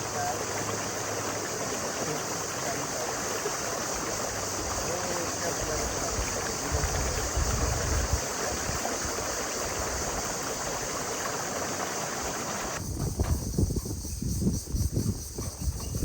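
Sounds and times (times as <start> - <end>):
river water rushing: 0.0 - 12.8.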